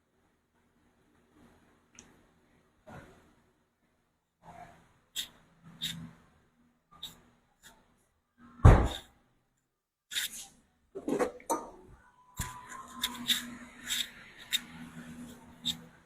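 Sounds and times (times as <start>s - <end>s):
heavy thump: 8.6s - 9.0s.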